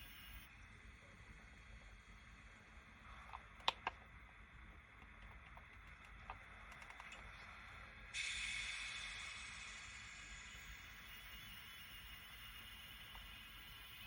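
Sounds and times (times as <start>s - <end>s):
hiss from small speaker: 0.0s - 3.9s, 7.5s - 14.0s
sharp clicks: 3.3s - 4.1s, 5.0s - 7.4s.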